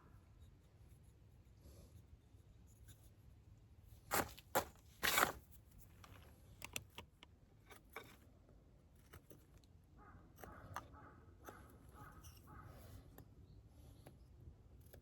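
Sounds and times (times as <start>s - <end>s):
scraping rustle: 4.1s - 6.2s.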